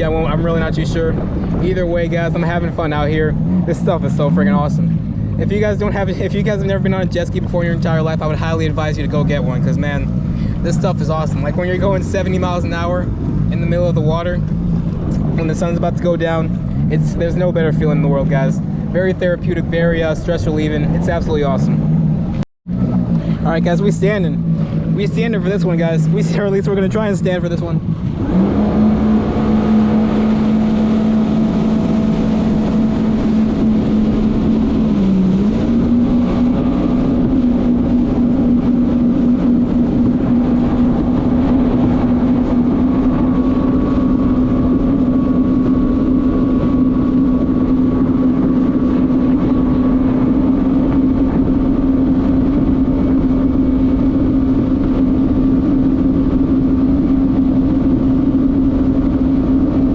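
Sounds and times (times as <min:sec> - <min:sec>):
jet ski engine running: 0:00.0 - 0:59.9
rushing water noise: 0:23.4 - 0:45.8.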